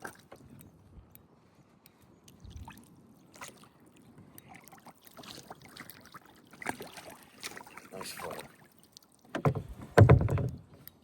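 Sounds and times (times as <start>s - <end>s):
dull thump: 9.3s - 10.7s
light knocks on kayak hull: 9.3s - 10.7s.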